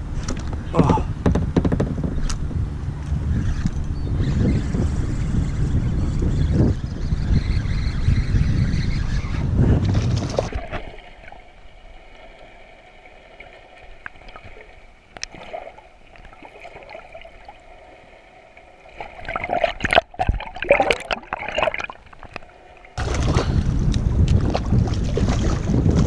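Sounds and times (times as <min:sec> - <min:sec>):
water splashing and bubbling: 0:09.9 - 0:26.0.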